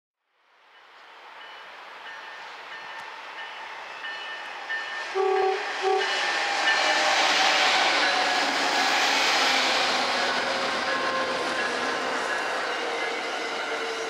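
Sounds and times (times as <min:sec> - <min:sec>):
passenger train rushing past: 0:00.6 - 0:14.0
locomotive horn blasts: 0:05.1 - 0:07.2.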